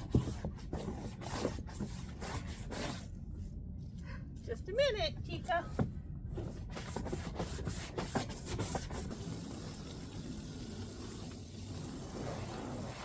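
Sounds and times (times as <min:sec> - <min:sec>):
water running from a hose: 0:08.9 - 0:13.0.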